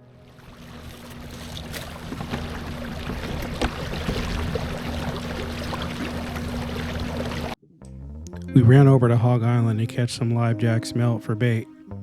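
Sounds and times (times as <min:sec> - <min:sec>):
water splashing against hull: 0:00.0 - 0:07.6
boat motor hum: 0:00.0 - 0:12.0.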